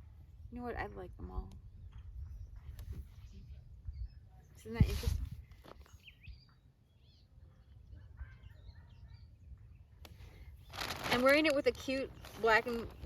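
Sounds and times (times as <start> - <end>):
bird chirps: 5.7 - 10.0.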